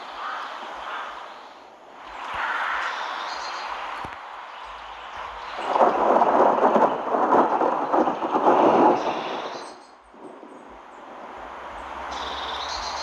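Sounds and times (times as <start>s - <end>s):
thunder rumbling: 5.2s - 13.0s.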